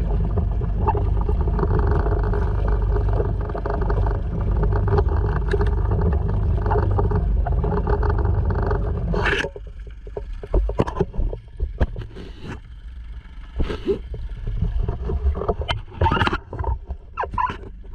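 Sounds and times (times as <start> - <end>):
outboard motor running: 0.0 - 17.9
irregular knocks and clatters: 0.1 - 12.2.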